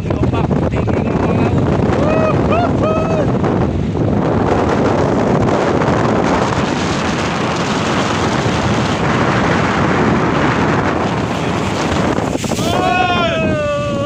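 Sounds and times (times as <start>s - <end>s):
rough sea waves: 0.0s - 14.0s
wind buffeting microphone: 0.0s - 14.0s.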